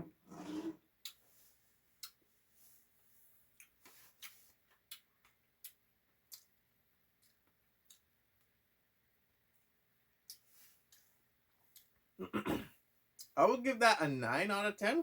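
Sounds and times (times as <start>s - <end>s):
faint eating clicks: 2.0s - 2.2s, 3.6s - 8.6s, 10.2s - 12.0s.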